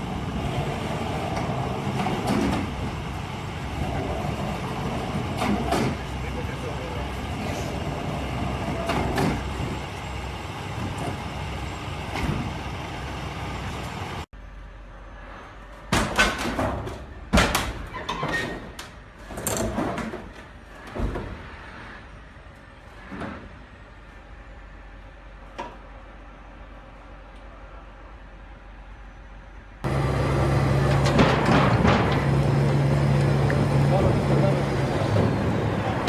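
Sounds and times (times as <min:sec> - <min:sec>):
road and vehicle noise: 0:00.0 - 0:36.0
loud bangs and knocks: 0:30.8 - 0:32.8.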